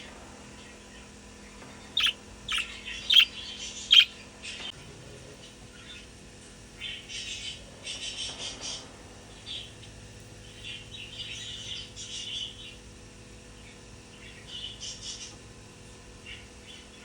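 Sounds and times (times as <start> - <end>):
budgie chirping: 2.0 - 4.1.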